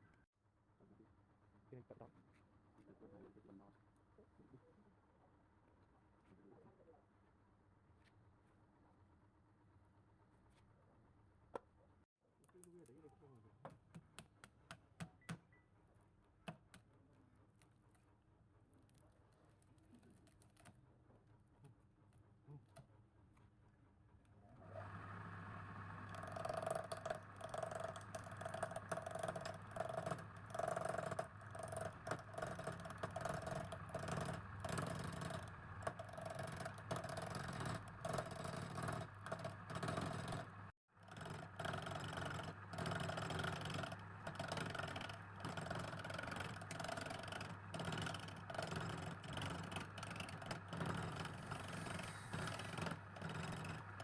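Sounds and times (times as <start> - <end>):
electric motor humming: 24.6 - 54.0.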